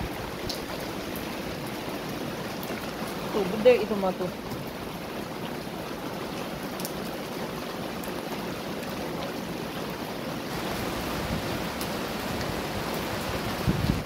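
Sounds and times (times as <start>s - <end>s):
rain splashing into floodwater: 0.0s - 14.0s.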